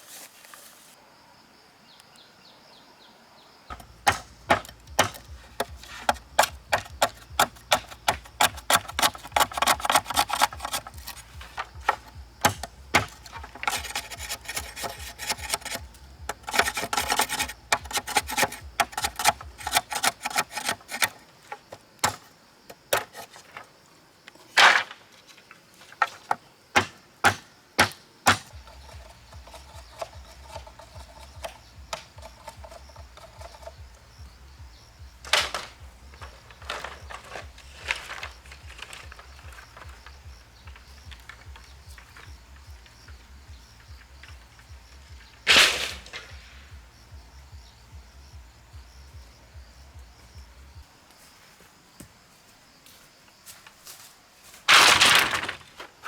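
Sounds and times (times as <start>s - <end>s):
hand tools knocking on wood: 3.7s - 21.2s, 26.0s - 34.4s
scraping on wood: 3.7s - 23.7s, 28.3s - 34.4s, 35.1s - 46.4s.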